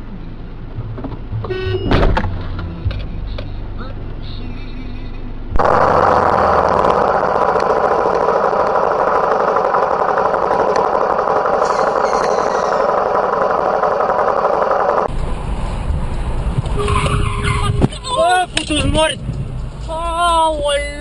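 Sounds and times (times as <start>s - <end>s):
vehicle engine running loudly: 0.0s - 16.8s.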